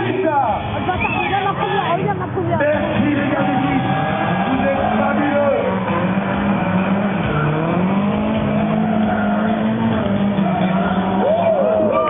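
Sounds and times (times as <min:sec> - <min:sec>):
car engines revving: 0:00.0 - 0:12.0
tyres squealing: 0:03.0 - 0:12.0.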